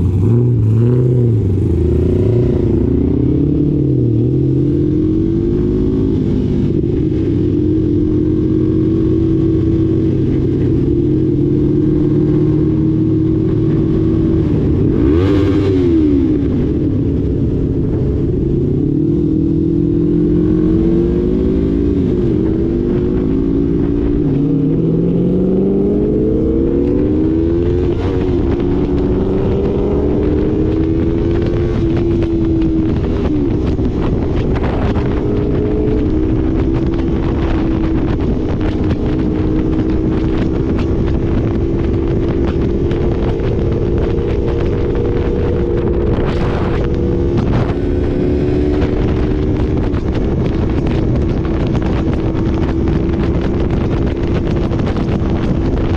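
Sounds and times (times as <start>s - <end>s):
motorcycle engine revving: 0.0s - 55.9s
wind noise: 0.0s - 55.9s.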